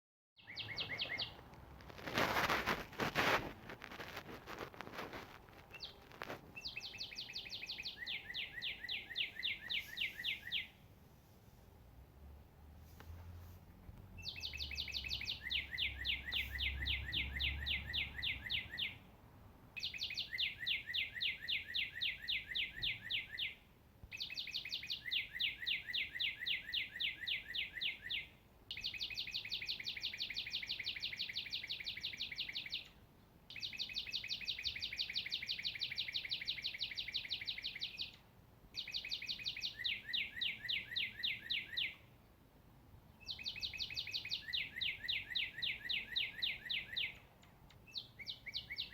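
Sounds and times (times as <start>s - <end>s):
songbird trilling: 0.4s - 1.4s, 5.7s - 10.8s, 14.2s - 19.0s, 19.8s - 38.2s, 38.8s - 42.1s, 43.2s - 47.3s, 47.9s - 48.9s.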